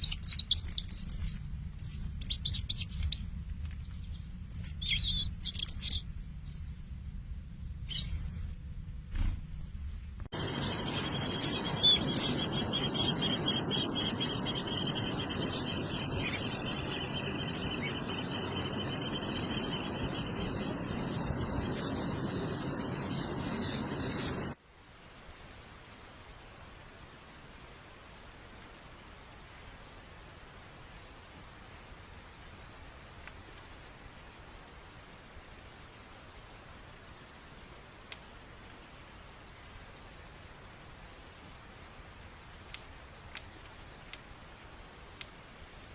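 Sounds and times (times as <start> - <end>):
chorus of birds singing: 0.0 - 7.0, 10.4 - 24.6
background hiss: 4.4 - 45.9
high-pitched insect trill: 10.3 - 45.9.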